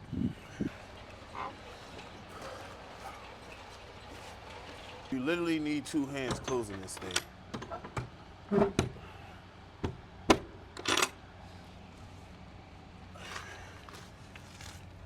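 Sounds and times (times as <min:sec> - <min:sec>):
sharp knocks and clanks: 0:09.8 - 0:11.1.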